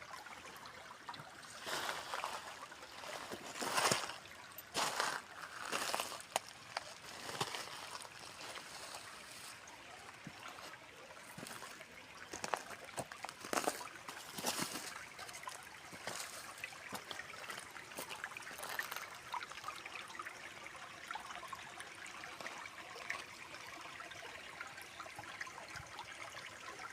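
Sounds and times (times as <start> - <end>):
water splashes: 0.0 - 20.0
stream water trickling: 0.0 - 26.9.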